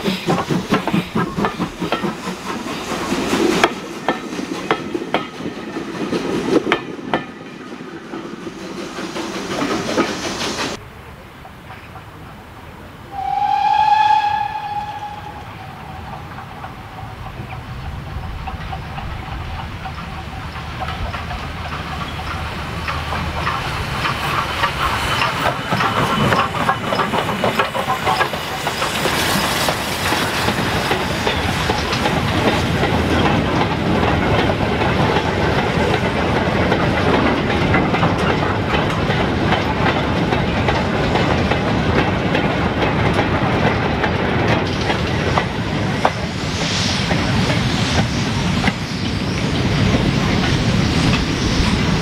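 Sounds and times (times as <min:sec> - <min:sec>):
train wheels clattering over rail joints: 0:00.0 - 0:10.8, 0:15.9 - 0:52.0
steady rushing noise: 0:14.4 - 0:52.0.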